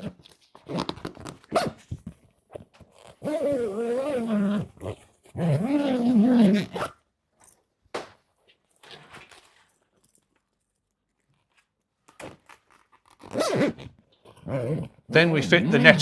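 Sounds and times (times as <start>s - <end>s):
fabric zipping and rustling: 2.8s - 7.0s, 12.3s - 16.0s.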